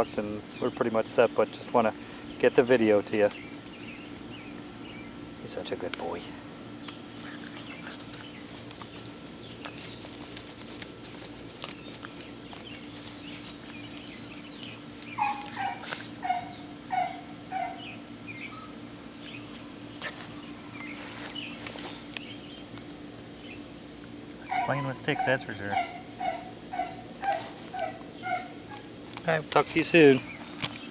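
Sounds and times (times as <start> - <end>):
steady low hum: 0.0 - 30.9
fainter higher animal calls: 6.3 - 22.1, 24.4 - 29.0.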